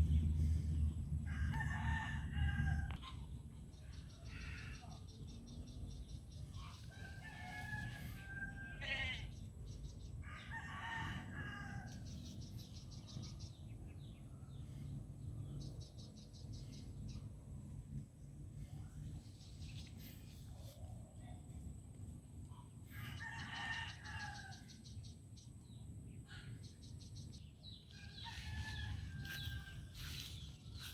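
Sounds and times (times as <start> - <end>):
low steady rumble: 0.0 - 30.9
rooster crowing: 1.3 - 3.0, 6.9 - 9.3, 10.2 - 12.1, 23.0 - 24.8, 27.9 - 30.9.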